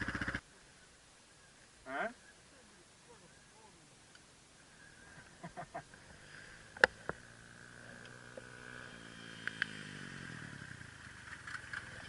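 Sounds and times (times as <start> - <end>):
dirt bike engine running: 0.0 - 0.4, 6.2 - 12.0
sharp clicks: 9.4 - 9.8.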